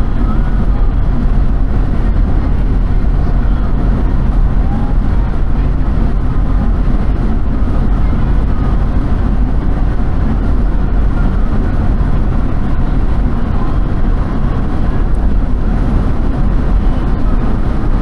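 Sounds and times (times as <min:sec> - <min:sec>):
vehicle rumble: 0:00.0 - 0:18.0.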